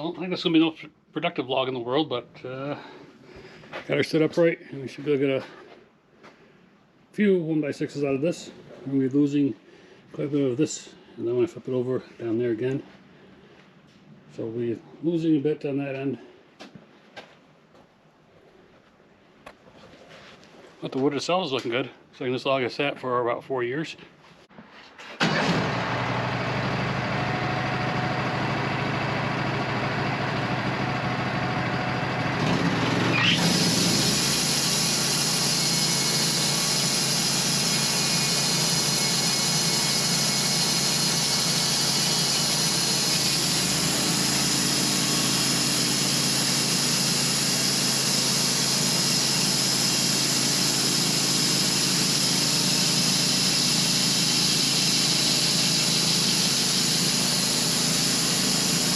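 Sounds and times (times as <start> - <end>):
sawmill running: 25.2 - 58.9
band blade hissing: 33.1 - 58.9.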